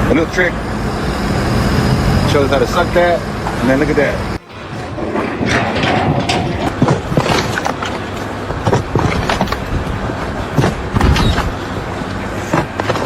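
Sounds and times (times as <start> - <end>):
machinery humming: 4.4 - 7.6
irregular knocks and clatter: 4.4 - 7.9.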